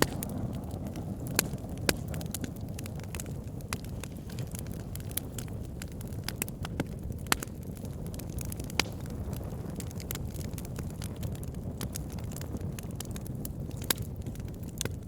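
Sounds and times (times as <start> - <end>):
sharp wood pops: 0.0 - 0.3, 6.3 - 7.6
burning logs crackling: 0.0 - 15.0
low rumble of flames: 0.0 - 15.0.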